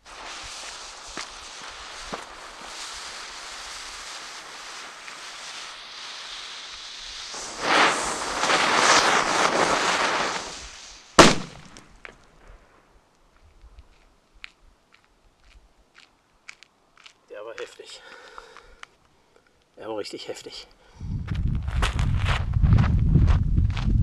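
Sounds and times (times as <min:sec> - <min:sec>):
firecracker hissing: 0:00.0 - 0:12.0
firecracker rushing burn: 0:00.0 - 0:12.1
faint crackles: 0:00.0 - 0:19.9
firecracker bang: 0:06.6 - 0:12.1.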